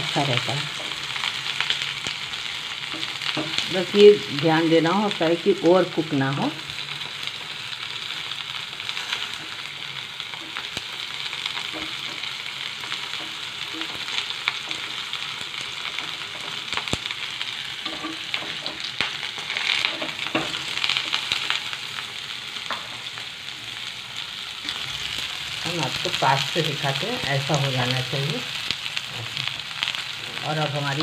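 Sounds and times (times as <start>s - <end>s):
vegetables sizzling in oil: 0.0s - 31.0s
spatula scraping and tapping pan: 2.8s - 3.6s, 11.5s - 21.4s.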